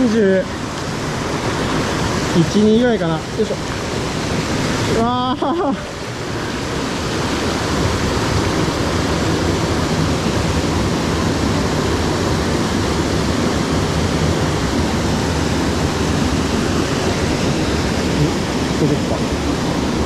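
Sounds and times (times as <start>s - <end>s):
stream whitewater rushing: 0.0s - 20.0s.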